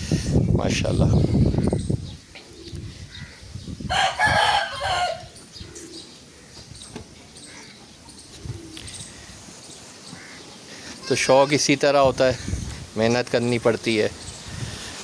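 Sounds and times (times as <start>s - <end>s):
low farmyard background: 0.0s - 15.0s
rooster crowing: 3.9s - 5.3s.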